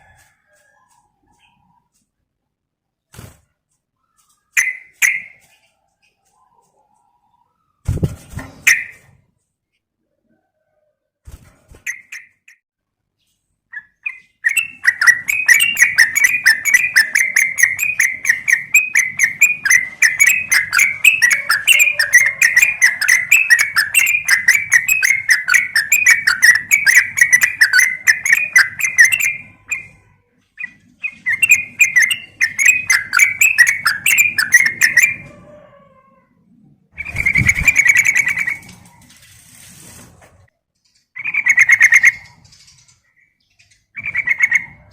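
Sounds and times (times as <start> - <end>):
bird chattering chirps: 13.7 - 35.3, 41.2 - 44.9.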